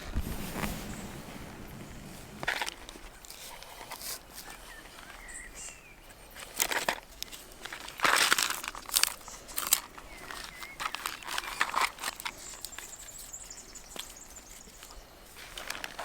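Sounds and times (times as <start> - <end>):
crinkling and crunching of dry material: 0.0 - 16.0
faint bird chirps: 4.4 - 6.4, 9.1 - 15.3.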